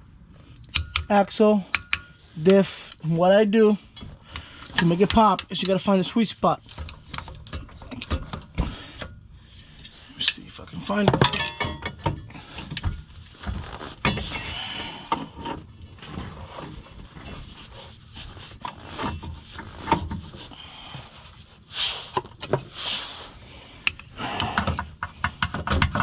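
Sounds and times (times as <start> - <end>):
metal knocks and clunks: 10.9 - 15.6, 23.9 - 26.0.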